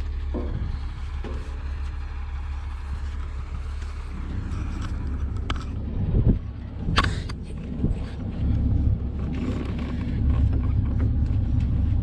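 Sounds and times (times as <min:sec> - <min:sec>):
knocks and scuffs of climbing: 0:00.0 - 0:12.0
wind buffeting microphone: 0:00.0 - 0:12.0.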